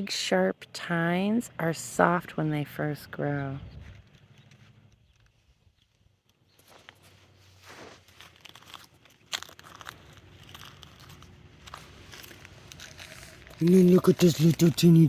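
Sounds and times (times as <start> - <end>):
crackling and rustling movement: 3.4 - 15.0.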